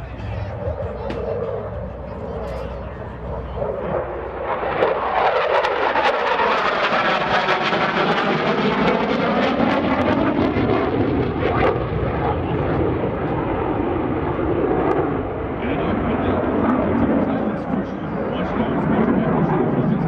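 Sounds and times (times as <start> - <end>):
jet fighter flying past: 0.0 - 20.0.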